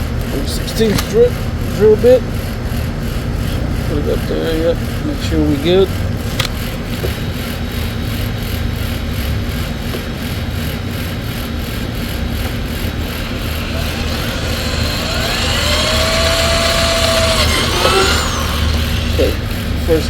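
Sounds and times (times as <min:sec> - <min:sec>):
power drill drilling: 0:12.6 - 0:20.0.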